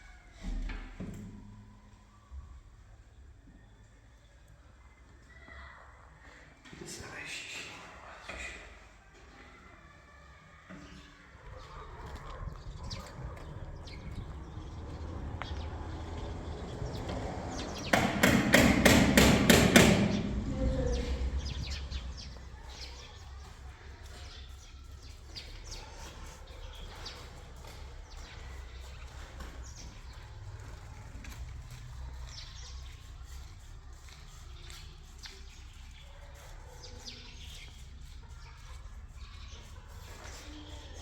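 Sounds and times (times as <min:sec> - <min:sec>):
small birds chirping: 0:09.4 - 0:18.0, 0:19.8 - 0:41.0.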